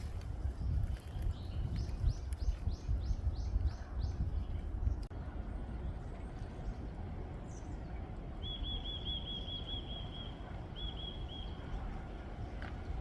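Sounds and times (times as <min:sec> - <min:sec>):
wind on microphone: 0:00.0 - 0:08.4.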